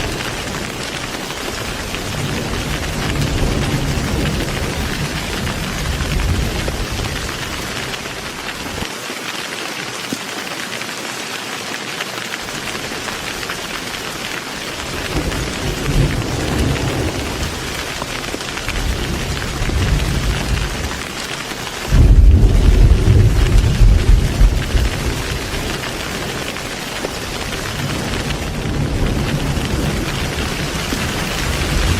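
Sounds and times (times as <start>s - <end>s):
rolling thunder: 0.0s - 8.0s, 14.8s - 21.0s, 21.9s - 31.9s
heavy rain: 0.0s - 31.9s.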